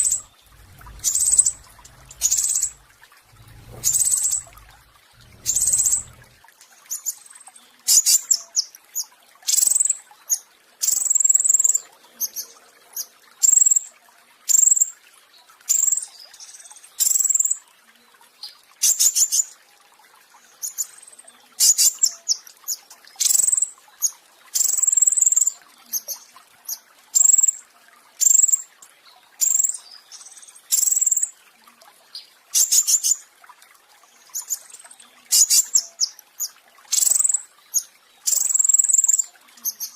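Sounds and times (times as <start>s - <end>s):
songbird singing rapid rolling phrases: 0.0s - 6.4s.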